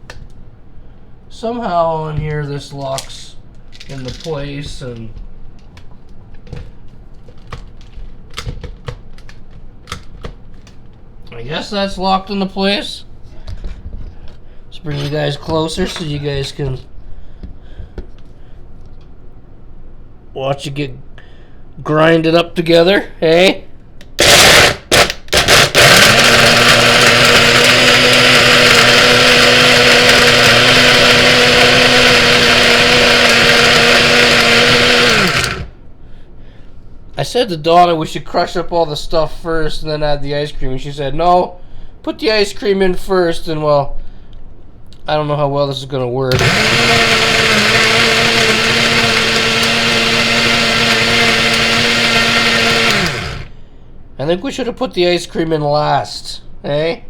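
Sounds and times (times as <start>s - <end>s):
electric blender grinding ice cream: 24.2s - 35.7s, 46.3s - 53.5s.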